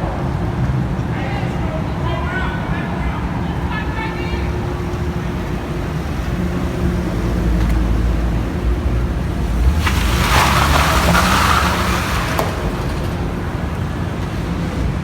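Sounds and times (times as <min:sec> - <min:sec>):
car engine running: 0:03.5 - 0:15.0
engine revving: 0:04.7 - 0:14.8.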